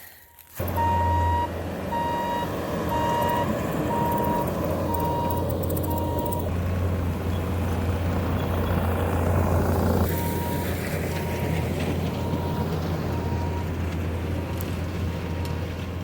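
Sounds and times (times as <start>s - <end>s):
diesel engine running: 0.0s - 16.0s
backup alarm beeping: 0.1s - 6.5s, 10.1s - 10.6s, 12.2s - 13.7s.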